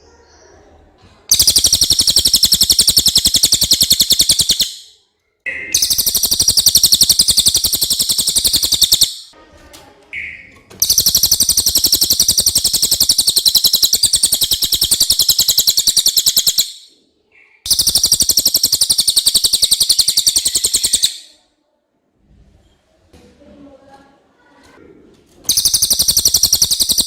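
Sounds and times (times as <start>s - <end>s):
bird singing fast high trills: 1.3s - 4.9s, 5.5s - 9.3s, 10.8s - 21.4s, 25.5s - 27.0s.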